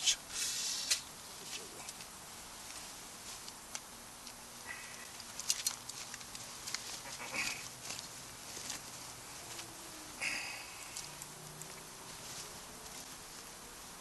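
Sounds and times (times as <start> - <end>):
campfire crackling and popping: 0.8 - 9.1, 10.2 - 12.2.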